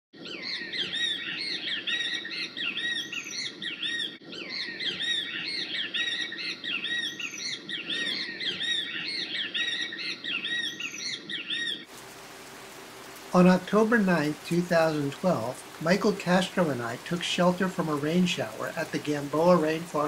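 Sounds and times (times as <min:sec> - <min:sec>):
bird calling: 0:00.2 - 0:20.0.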